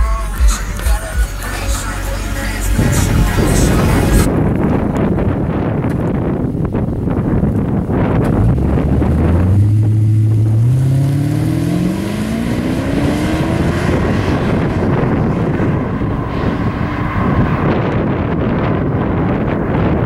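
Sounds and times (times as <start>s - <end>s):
wind on microphone: 2.5s - 20.0s
car engine accelerating: 6.8s - 20.0s.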